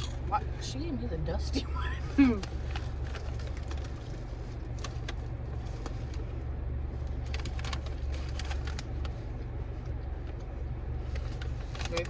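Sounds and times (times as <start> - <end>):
car cabin hum: 0.0 - 12.0
small clicks and crackles: 2.4 - 6.3, 7.0 - 12.0.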